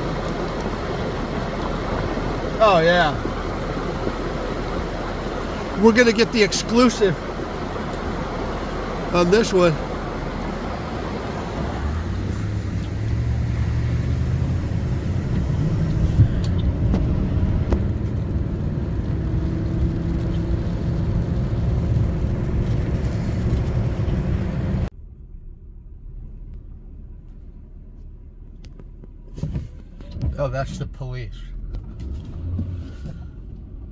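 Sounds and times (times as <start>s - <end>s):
car engine and tyres rumbling: 0.0s - 33.9s.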